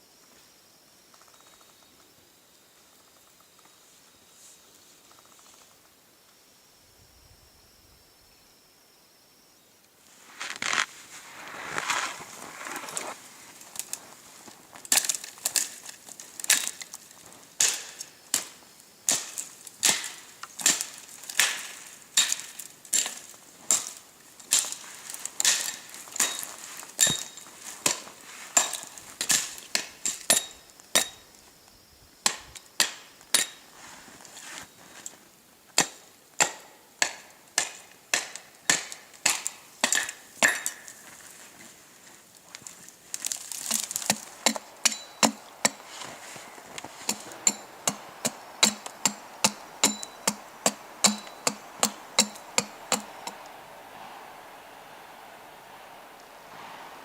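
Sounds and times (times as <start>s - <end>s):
striking tool hard blows: 43.7s - 53.5s.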